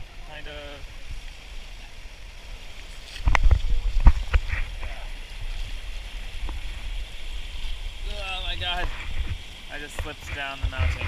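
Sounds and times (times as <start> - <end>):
rushing water: 0.0 - 11.0
wind: 0.0 - 11.0.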